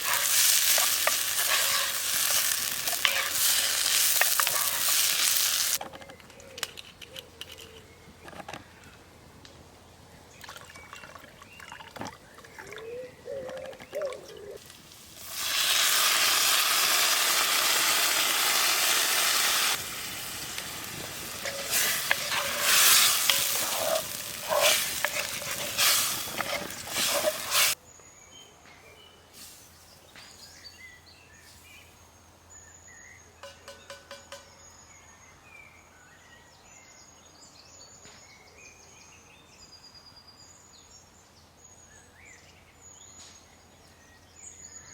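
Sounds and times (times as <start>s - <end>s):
food sizzling in a pan: 0.0s - 5.8s, 15.0s - 27.8s
stirring clicks and scrapes: 0.0s - 8.6s, 20.6s - 27.8s
birds chirping: 0.0s - 14.6s, 19.7s - 35.8s.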